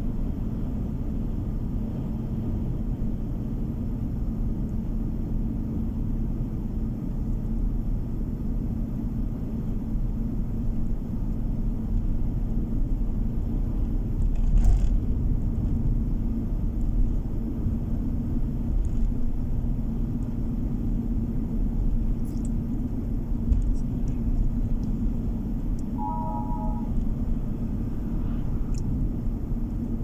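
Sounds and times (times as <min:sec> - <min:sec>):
car tyre and engine rumble: 0:00.0 - 0:30.0
faint steady hum: 0:19.9 - 0:30.0.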